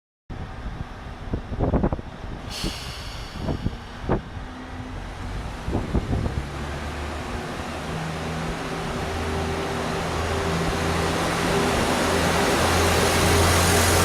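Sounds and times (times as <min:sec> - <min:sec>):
diesel engine humming: 0:02.1 - 0:14.0
air hiss: 0:02.4 - 0:04.6.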